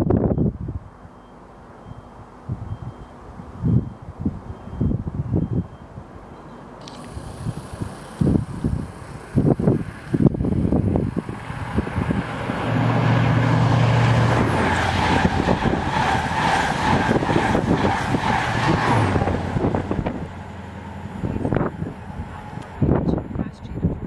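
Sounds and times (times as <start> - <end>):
diesel engine hum: 0.0 - 24.0
train wheels rushing on rails: 7.0 - 23.0.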